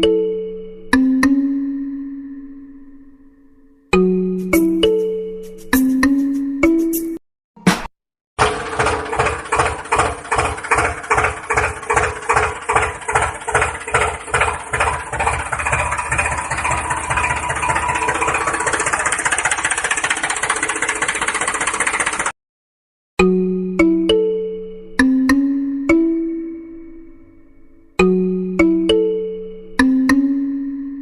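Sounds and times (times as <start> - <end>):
small engine chugging: 8.4 - 22.4.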